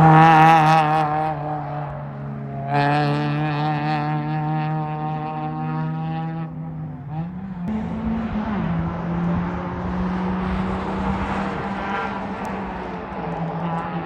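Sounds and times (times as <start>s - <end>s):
sports car engine revving: 0.0s - 14.0s
wind and tyre rush: 6.8s - 14.0s.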